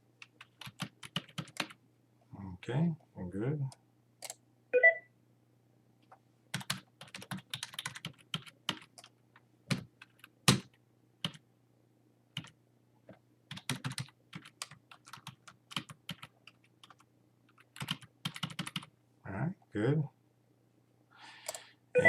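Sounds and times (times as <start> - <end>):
typing on computer keyboard: 0.2 - 1.8, 6.5 - 9.1, 9.7 - 11.4, 12.4 - 12.6, 13.5 - 18.9.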